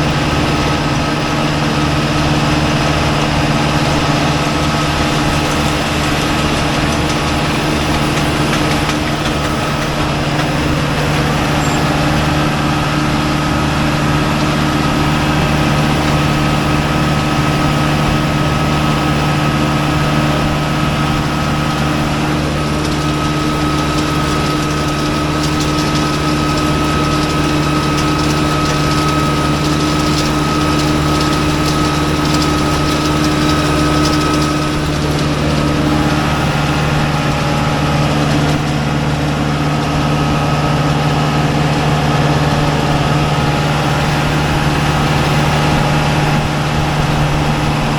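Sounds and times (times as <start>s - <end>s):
diesel tractor engine drone: 0.0s - 47.9s.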